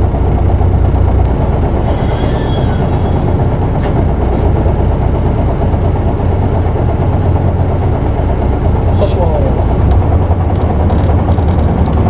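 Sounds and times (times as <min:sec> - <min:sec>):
bus diesel engine running: 0:00.0 - 0:12.0
faint thin squeal: 0:01.4 - 0:04.7.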